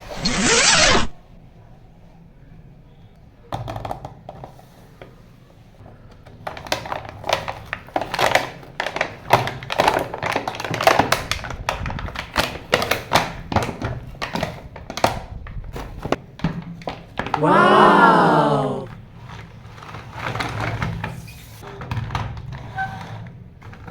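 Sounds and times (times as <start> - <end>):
plastic toy cars clattering: 6.3 - 11.4, 23.6 - 23.9.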